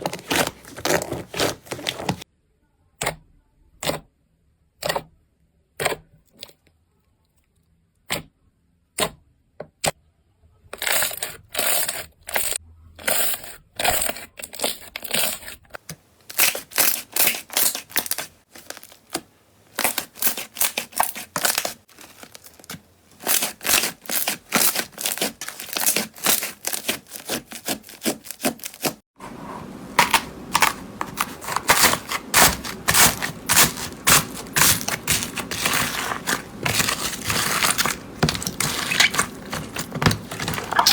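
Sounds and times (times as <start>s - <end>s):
slime crackling and popping: 30.2s - 40.9s.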